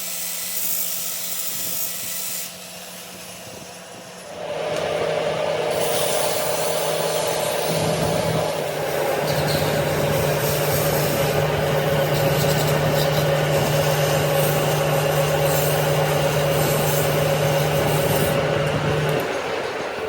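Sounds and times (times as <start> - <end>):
machine rubbing and rasping: 4.2 - 19.9.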